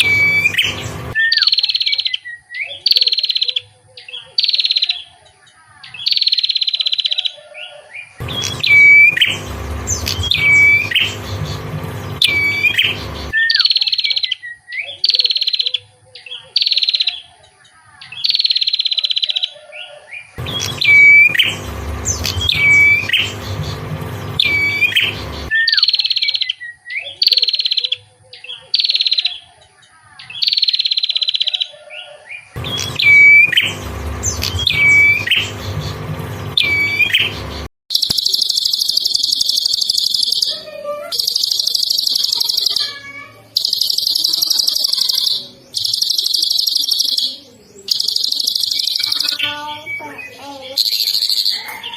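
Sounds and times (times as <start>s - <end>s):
low hum: 0.0s - 1.2s, 8.2s - 13.4s, 20.4s - 25.5s, 32.6s - 37.7s
songbird high whistled notes: 0.0s - 3.6s, 7.6s - 11.2s, 12.2s - 15.6s, 24.4s - 27.1s.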